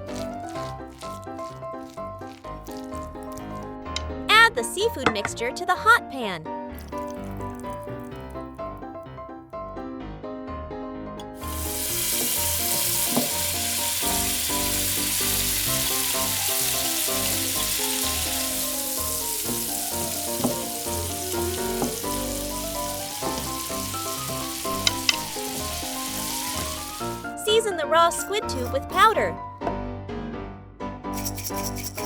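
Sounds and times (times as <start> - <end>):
food sizzling in oil: 0.0 - 3.7, 11.3 - 27.4, 31.2 - 32.0.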